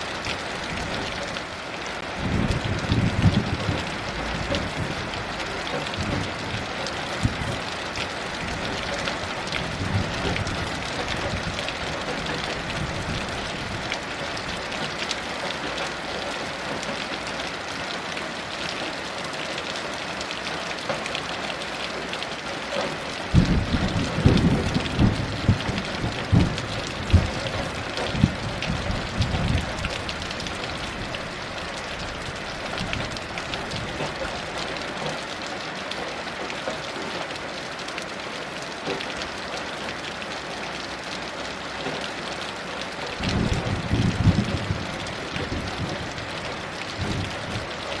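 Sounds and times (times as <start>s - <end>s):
heavy rain hissing: 0.0s - 48.0s
thunder rumbling: 2.1s - 7.7s, 8.3s - 14.6s, 23.3s - 34.2s, 43.2s - 48.0s.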